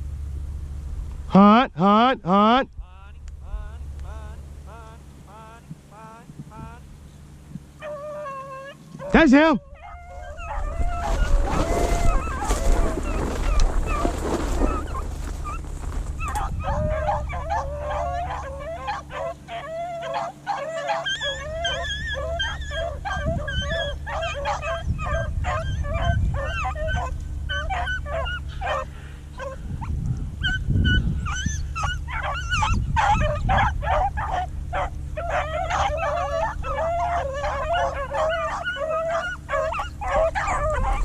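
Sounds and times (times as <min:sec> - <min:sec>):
beagles baying and yelping: 0:04.1 - 0:41.0.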